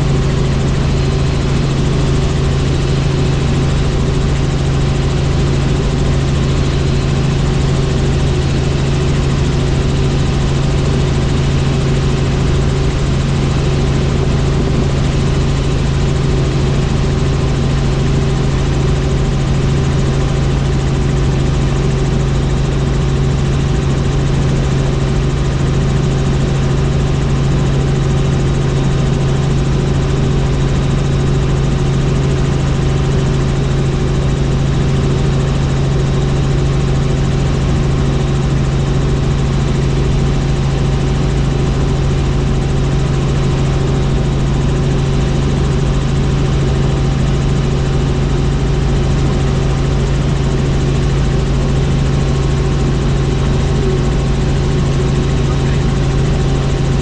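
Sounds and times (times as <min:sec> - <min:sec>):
helicopter rotors and engine: 0:00.0 - 0:57.0.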